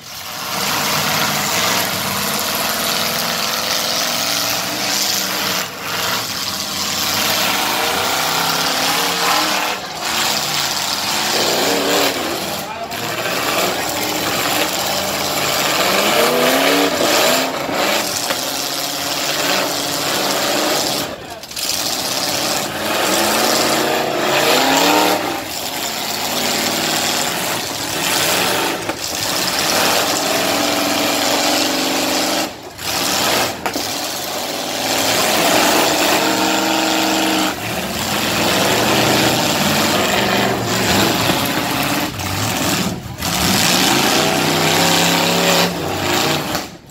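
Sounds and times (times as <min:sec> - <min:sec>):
engines revving: 0:00.0 - 0:46.9
loud noisy din: 0:00.5 - 0:18.3.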